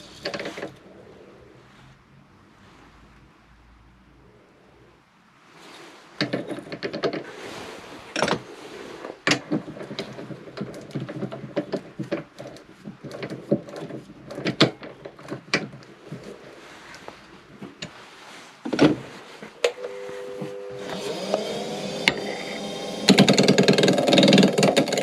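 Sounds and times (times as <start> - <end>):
wood and metal tools knocking: 6.2 - 7.3, 9.3 - 15.8, 20.8 - 25.0.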